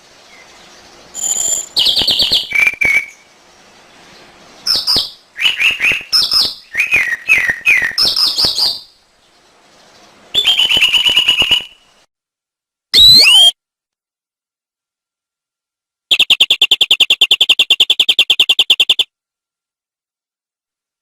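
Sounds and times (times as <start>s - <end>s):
canary singing: 4.6s - 8.9s, 10.4s - 11.8s, 13.0s - 13.5s, 16.1s - 19.1s.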